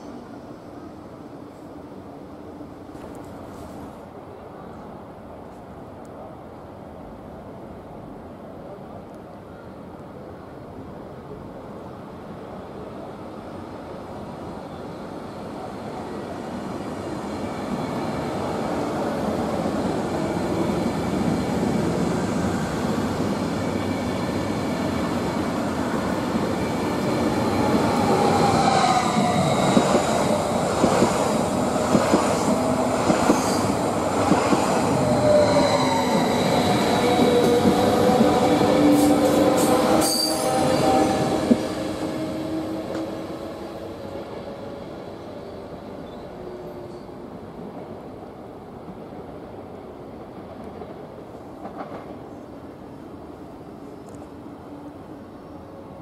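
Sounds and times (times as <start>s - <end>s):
train running noise: 16.0s - 49.5s
wheels and brakes squealing: 38.9s - 41.2s.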